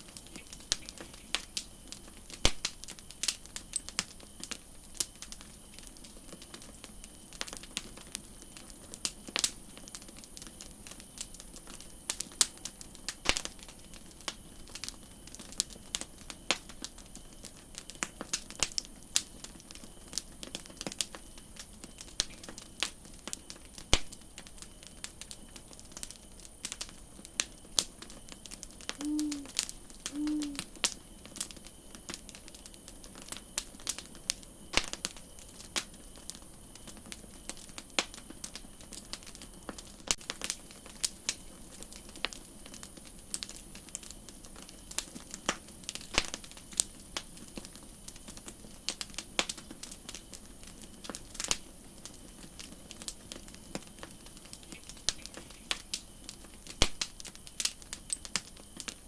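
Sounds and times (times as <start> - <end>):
campfire crackling: 0.0 - 59.0
short low hoots: 29.0 - 30.6.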